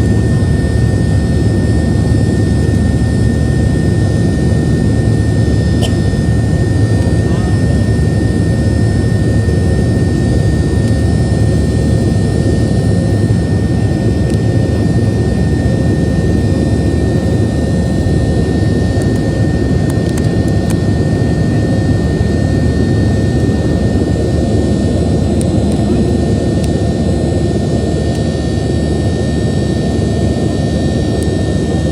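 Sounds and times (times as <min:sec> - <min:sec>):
jet engines rumbling: 0:00.0 - 0:31.9.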